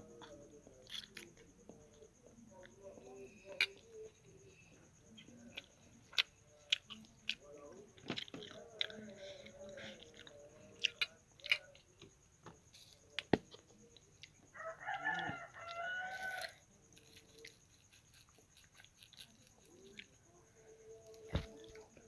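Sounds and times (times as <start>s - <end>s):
rooster crowing: 14.5s - 16.6s.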